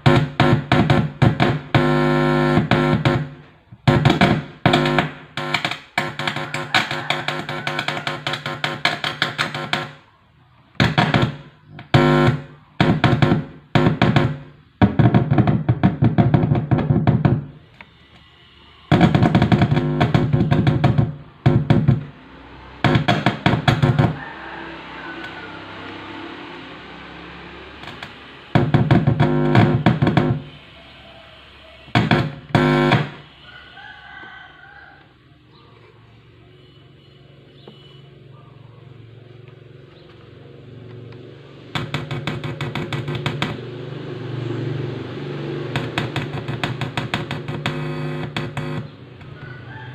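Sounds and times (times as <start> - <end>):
loudspeaker mains hum buzzing: 0.0 - 8.1, 10.8 - 22.1, 27.8 - 30.7, 31.9 - 33.4, 47.2 - 49.2.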